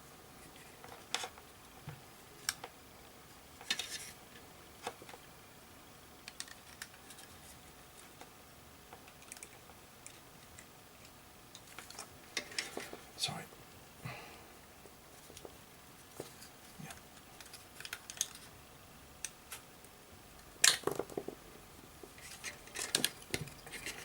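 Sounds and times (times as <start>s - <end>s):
small tools clicking on circuit board: 9.0s - 12.0s.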